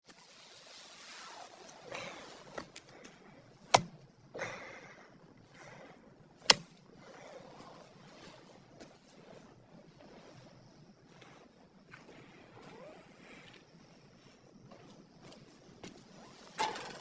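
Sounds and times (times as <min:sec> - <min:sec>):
brief rustle: 0:16.1 - 0:17.0.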